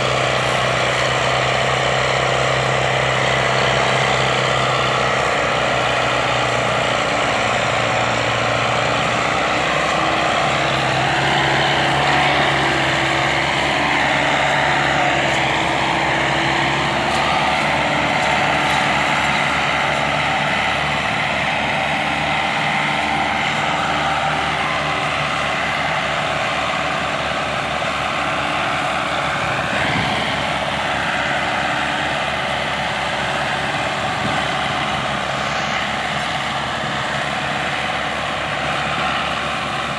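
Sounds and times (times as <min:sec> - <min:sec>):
diesel tractor engines under load: 0:00.0 - 0:39.9.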